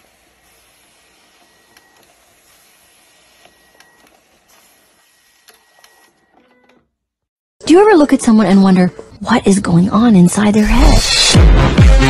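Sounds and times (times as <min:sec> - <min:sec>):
document scanner whirring: 0:00.0 - 0:06.9.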